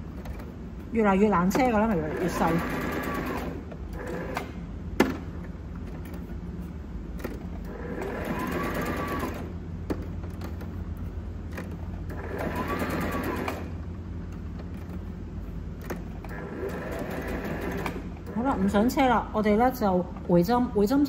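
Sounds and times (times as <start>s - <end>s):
low steady hum: 0.0s - 21.0s
sewing machine stitching: 1.5s - 4.6s, 7.2s - 9.5s, 11.6s - 13.7s, 15.9s - 18.7s.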